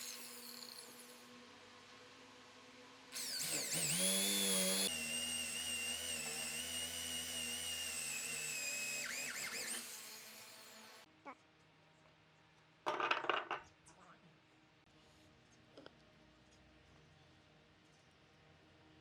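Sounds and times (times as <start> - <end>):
power tool motor whine: 0.0 - 1.8, 2.7 - 11.1.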